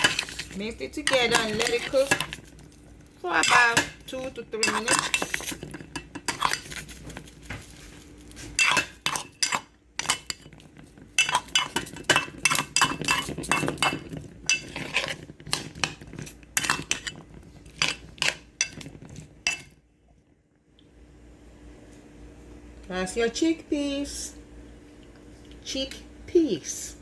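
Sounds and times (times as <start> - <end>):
spoon scraping in a pan: 0.0 - 2.4, 3.3 - 7.2, 8.5 - 19.7.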